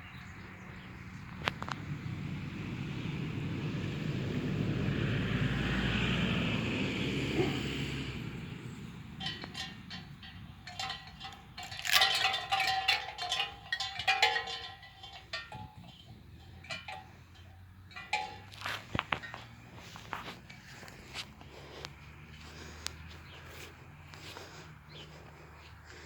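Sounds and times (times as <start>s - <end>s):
metal bells clinking: 8.6s - 25.4s.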